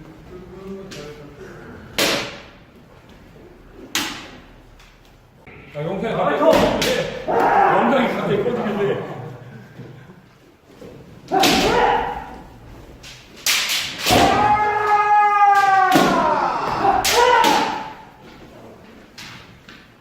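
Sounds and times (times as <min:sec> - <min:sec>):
bamboo swords striking: 0:02.0 - 0:02.6, 0:03.8 - 0:04.4, 0:06.5 - 0:07.6, 0:11.3 - 0:18.1
people shouting: 0:06.7 - 0:08.4, 0:11.3 - 0:12.7, 0:14.0 - 0:18.3.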